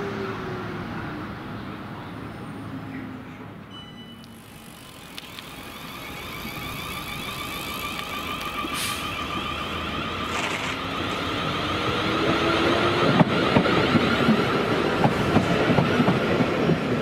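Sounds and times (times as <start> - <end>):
electric train approaching: 0.0 - 17.0
high-pitched ringing tone: 3.7 - 10.8.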